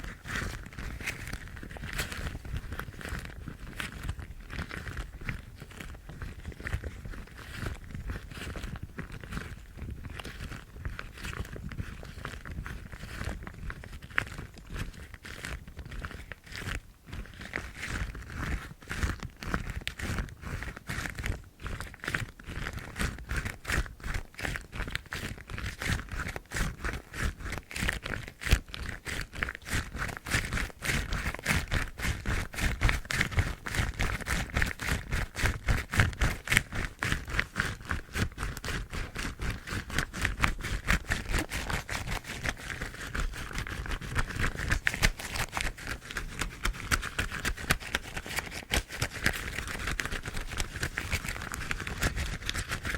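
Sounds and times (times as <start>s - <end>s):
rubber gloves rubbing and scratching: 0.0s - 52.9s.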